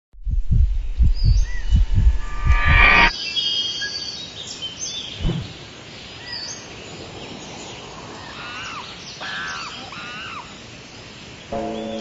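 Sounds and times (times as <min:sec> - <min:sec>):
birds chirping: 0:03.0 - 0:12.0
steady outdoor hiss: 0:03.1 - 0:12.0
low thump: 0:05.2 - 0:05.5.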